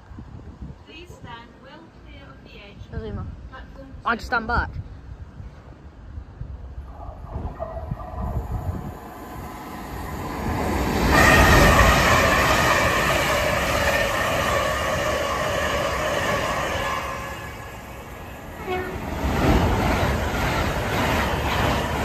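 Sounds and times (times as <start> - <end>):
train passing rumble: 4.7 - 22.0.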